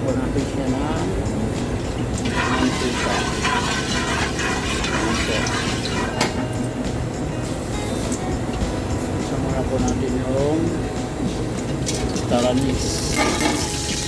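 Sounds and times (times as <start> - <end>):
oil pouring into a wok: 2.2 - 6.2, 11.8 - 14.0.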